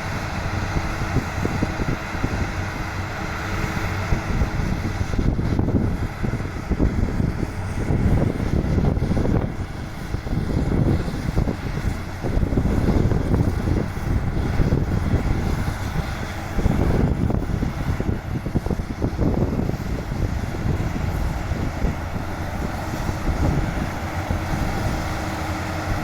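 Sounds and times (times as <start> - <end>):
diesel engine rumbling: 0.0 - 26.0.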